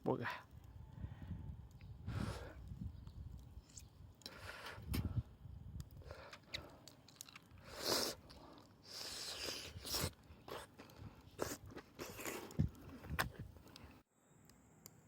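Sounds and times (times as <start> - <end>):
crunching and chewing: 6.0 - 14.0.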